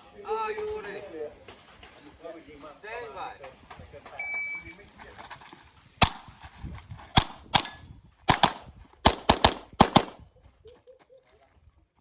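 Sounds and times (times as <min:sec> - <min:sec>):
handgun shots: 0:06.0 - 0:06.3, 0:07.2 - 0:10.2.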